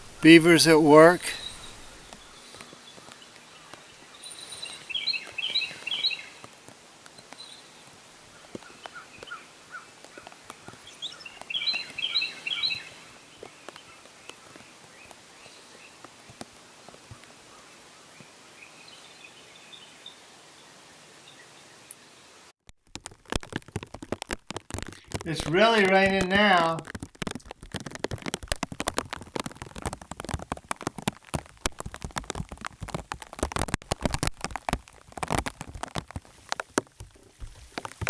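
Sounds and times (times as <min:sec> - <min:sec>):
songbird singing: 0:00.0 - 0:22.4
low outdoor hiss: 0:00.0 - 0:22.5, 0:25.2 - 0:26.9
faint scattered ticks: 0:01.0 - 0:18.4.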